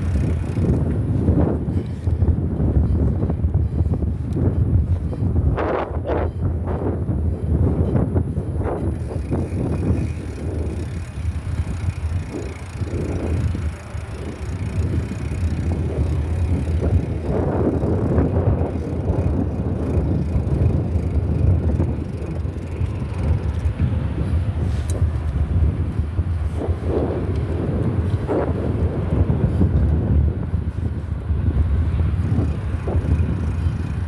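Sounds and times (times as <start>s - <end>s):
bicycle tyre road noise: 0.0s - 34.0s
wind rumbling on microphone: 0.0s - 34.0s.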